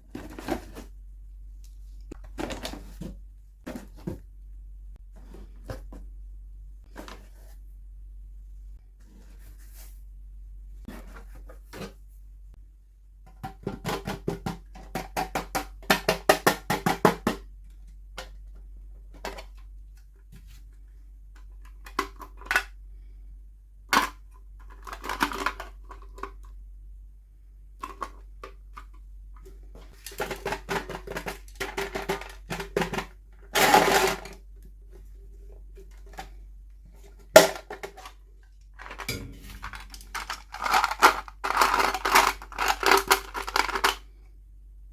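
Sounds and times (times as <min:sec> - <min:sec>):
taps and rattles on hard plastic: 0:13.2 - 0:17.5.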